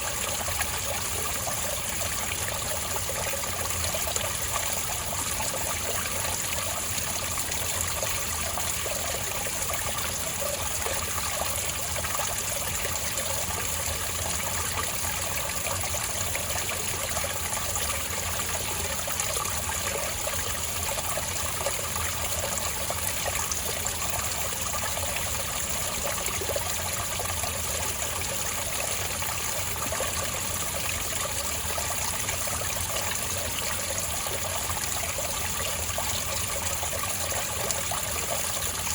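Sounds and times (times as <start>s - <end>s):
water trickling over rocks: 0.0s - 38.9s.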